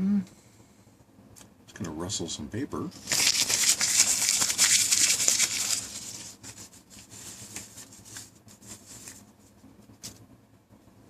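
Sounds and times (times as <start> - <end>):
paper rustling and crinkling: 2.9 - 10.2.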